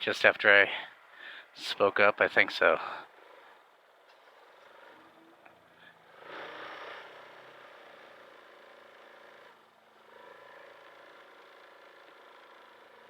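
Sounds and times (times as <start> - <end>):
vehicle engines in traffic: 0.0 - 13.0.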